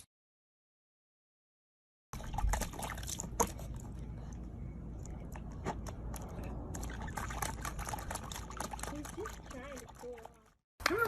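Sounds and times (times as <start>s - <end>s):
water splashing and trickling: 2.1s - 11.0s
steady low rumble: 2.2s - 8.7s
sharp drips and clicks: 2.2s - 11.0s.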